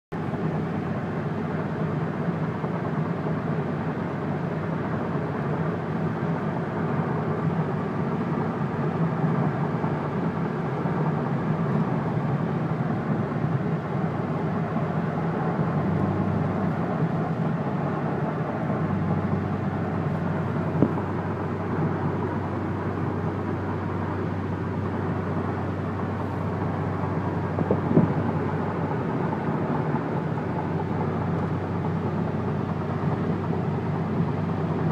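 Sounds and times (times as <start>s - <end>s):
car engine cruising hum: 0.2s - 34.9s
tyre and road noise: 14.9s - 34.9s.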